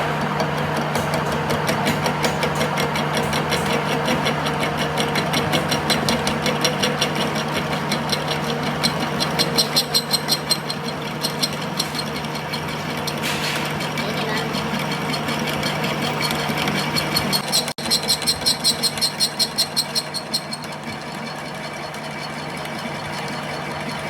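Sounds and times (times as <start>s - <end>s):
fast sharp knocks: 0.8s - 6.4s.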